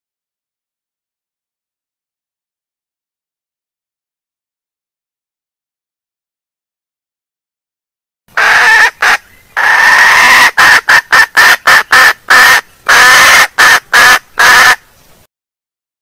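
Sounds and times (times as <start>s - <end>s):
hen calling and clucking: 8.3s - 15.2s.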